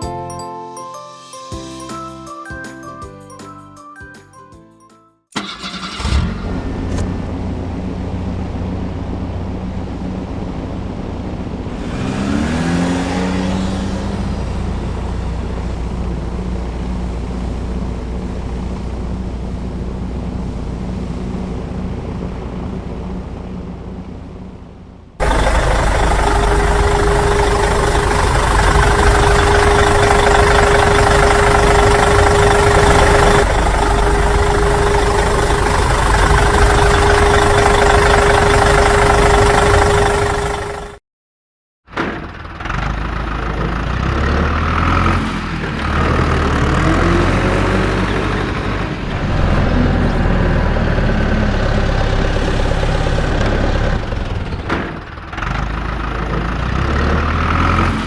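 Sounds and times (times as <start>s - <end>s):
vehicle engine revving: 11.4s - 18.1s, 25.2s - 40.7s, 42.6s - 58.0s
harsh machine noise with whine: 25.2s - 40.9s, 45.7s - 55.2s.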